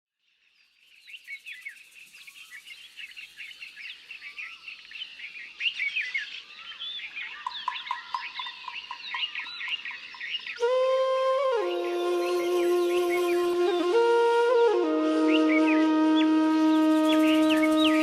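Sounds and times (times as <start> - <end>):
small birds chirping: 0.3 - 10.6.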